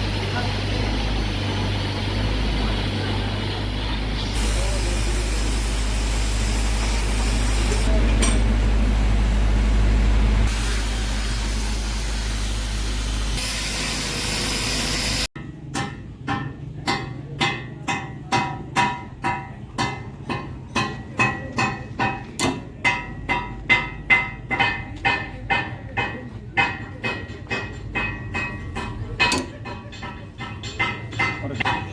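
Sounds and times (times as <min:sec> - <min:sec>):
hammer striking steel: 0:00.0 - 0:08.6, 0:10.4 - 0:31.9
steady hiss: 0:10.5 - 0:15.3.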